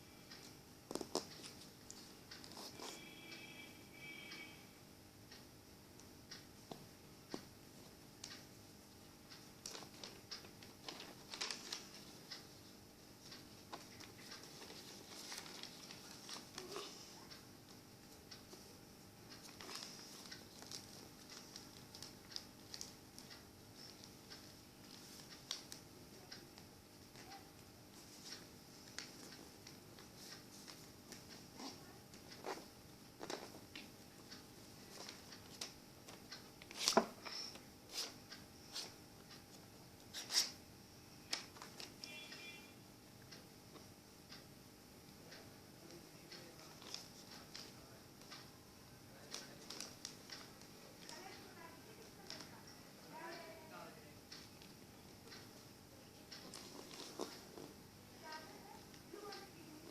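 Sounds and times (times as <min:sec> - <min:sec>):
paper rustling and creasing: 0:14.0 - 0:17.0.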